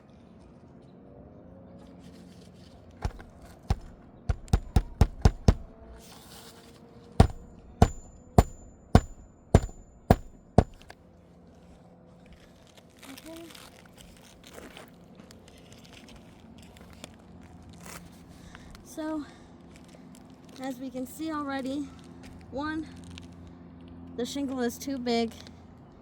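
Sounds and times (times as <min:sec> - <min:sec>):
hammer striking roof shingle: 0:03.0 - 0:05.8, 0:07.2 - 0:10.9.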